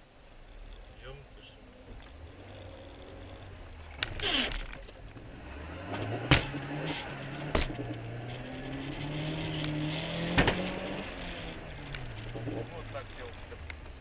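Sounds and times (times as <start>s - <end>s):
car engine speeding up: 1.9s - 13.7s
sharp knocks: 10.2s - 10.8s.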